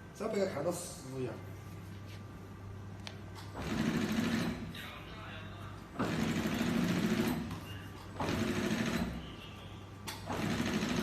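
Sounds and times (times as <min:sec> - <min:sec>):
steady low hum: 0:00.0 - 0:11.0
sewing machine stitching: 0:03.6 - 0:04.7, 0:06.0 - 0:07.5, 0:08.2 - 0:09.2, 0:10.2 - 0:11.0.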